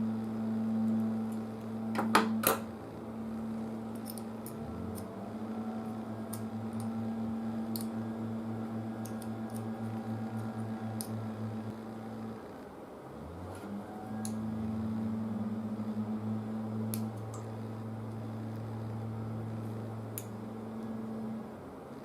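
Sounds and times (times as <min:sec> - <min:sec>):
low electrical hum: 0:00.0 - 0:22.0
hand cutters clicking and snipping: 0:03.9 - 0:05.1.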